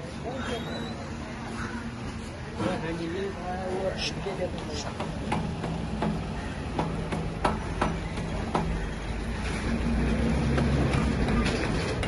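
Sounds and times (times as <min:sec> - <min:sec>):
sharp metallic knocks: 0:05.0 - 0:09.1.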